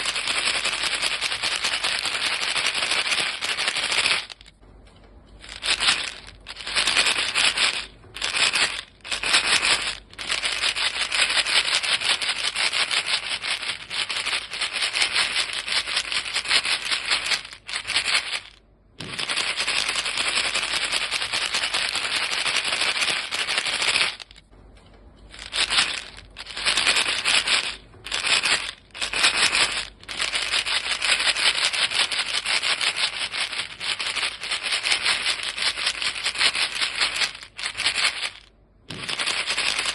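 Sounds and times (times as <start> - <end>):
chewing gum rattling in box: 0.0 - 4.6, 5.4 - 24.5, 25.3 - 39.9.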